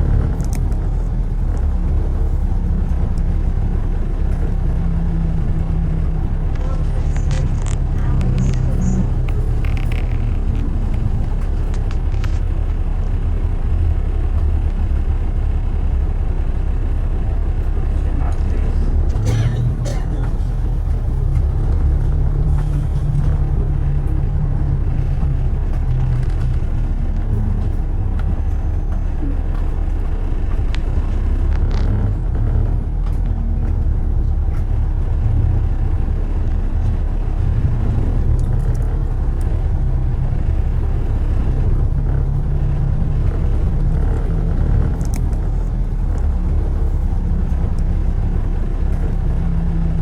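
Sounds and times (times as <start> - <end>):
road traffic rumble: 0.0 - 50.0
faint clicks: 17.6 - 50.0.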